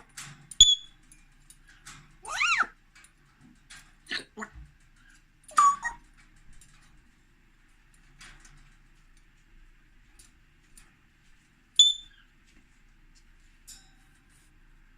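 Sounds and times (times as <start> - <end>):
parrot squawk: 2.2 - 2.7, 5.5 - 6.0
high sharp parrot whistle: 11.8 - 12.2.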